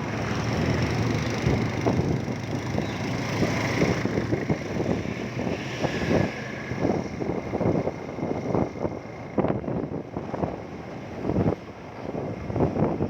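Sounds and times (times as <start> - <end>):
motorcycle engine: 0.0 - 9.3
road noise: 0.0 - 13.0
wind buffeting microphone: 0.0 - 13.0.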